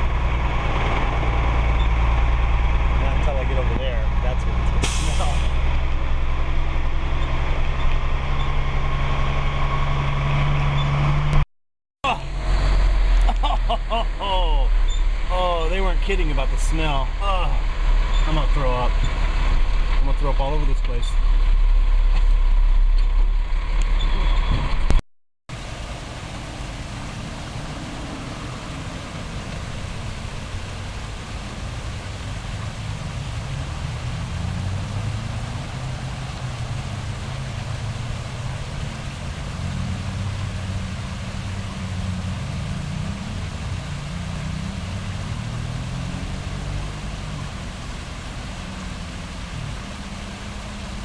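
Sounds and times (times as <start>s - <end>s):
road noise hiss: 0.0s - 11.4s, 12.0s - 51.0s
truck engine humming: 0.0s - 11.4s, 12.0s - 20.0s
truck low rumble: 0.0s - 11.4s, 12.0s - 51.0s.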